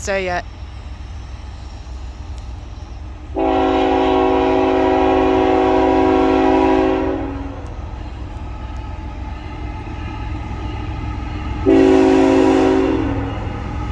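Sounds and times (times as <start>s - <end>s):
locomotive air horn blast: 3.4s - 7.6s, 11.6s - 13.2s.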